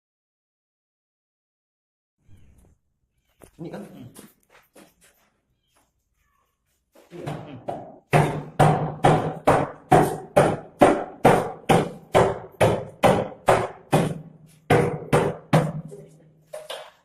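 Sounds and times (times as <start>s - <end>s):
hammer blows on concrete: 7.2s - 17.0s.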